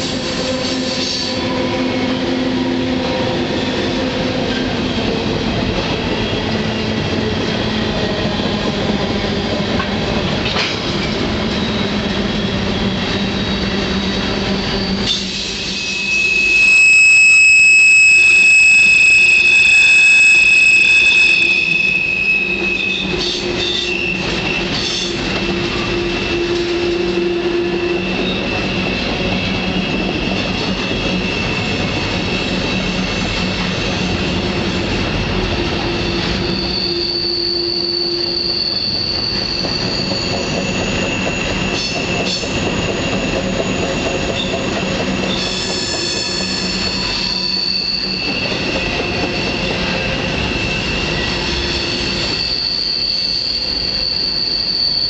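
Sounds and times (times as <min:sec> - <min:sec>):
train wheels rumbling and rattling: 0:00.0 - 0:16.1, 0:18.3 - 0:55.0
steel wheels squealing: 0:00.0 - 0:55.0.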